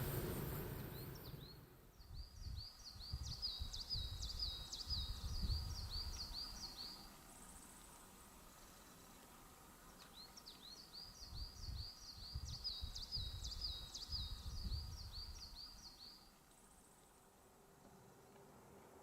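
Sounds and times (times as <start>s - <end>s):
low rumble: 0.0s - 1.9s
small songbird singing: 0.0s - 7.8s, 9.8s - 16.3s.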